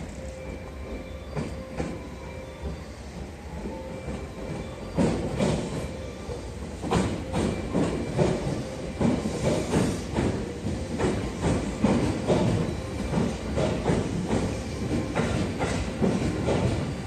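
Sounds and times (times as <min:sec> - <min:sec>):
train rumbling: 0:00.0 - 0:17.0
train wheels clacking over rail joints: 0:04.9 - 0:05.9, 0:06.8 - 0:17.0.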